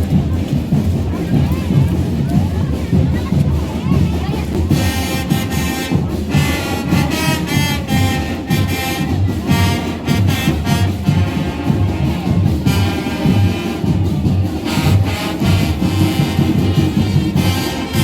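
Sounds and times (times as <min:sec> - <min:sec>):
marching band playing: 0:00.0 - 0:18.0.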